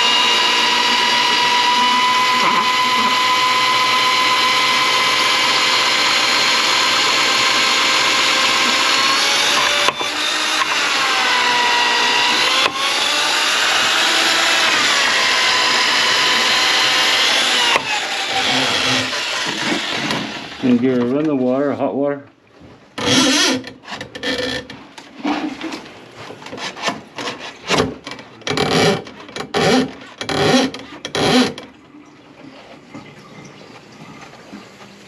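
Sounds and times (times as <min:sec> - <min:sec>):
drain snake motor whining: 0:00.0 - 0:20.7.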